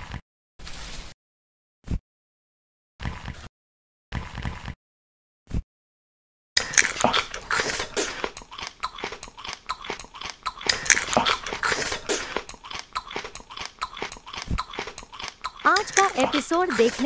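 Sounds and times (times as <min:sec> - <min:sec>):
crunchy biting and chewing: 0:06.6 - 0:17.0.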